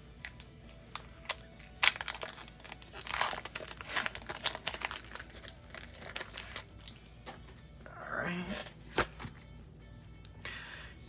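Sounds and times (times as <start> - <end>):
wrapper tearing open: 0.2 - 7.0
foil wrapper crinkling: 0.2 - 7.6.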